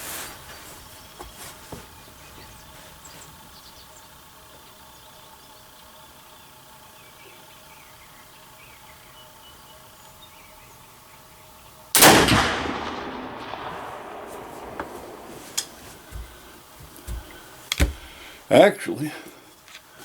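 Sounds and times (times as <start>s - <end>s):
rifle shot with echo: 12.0s - 17.2s
faint knocks: 14.7s - 18.3s.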